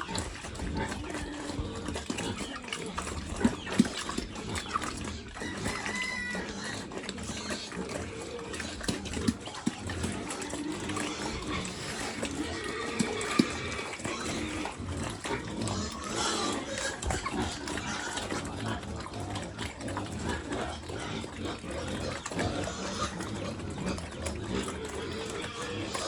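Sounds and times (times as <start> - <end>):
pigs grunting: 0.0 - 26.0
chomping clicks: 7.0 - 26.0.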